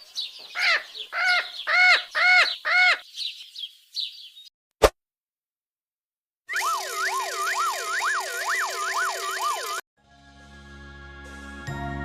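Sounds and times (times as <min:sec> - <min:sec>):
bird calling: 0:00.0 - 0:04.2
high bird chirps: 0:00.0 - 0:04.5.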